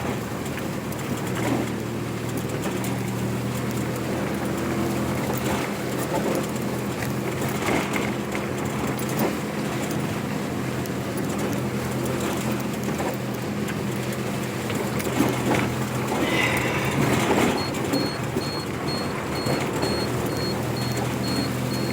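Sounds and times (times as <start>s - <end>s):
vehicle engine running: 0.0s - 21.9s
road noise: 0.2s - 21.9s.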